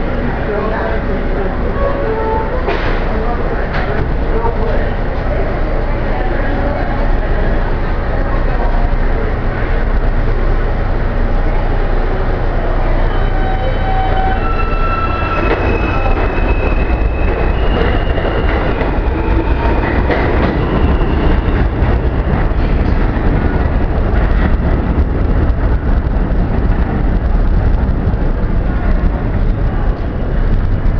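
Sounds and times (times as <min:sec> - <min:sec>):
subway train rail rumble: 0:00.0 - 0:30.9
high-pitched wheel squeal: 0:13.1 - 0:20.0.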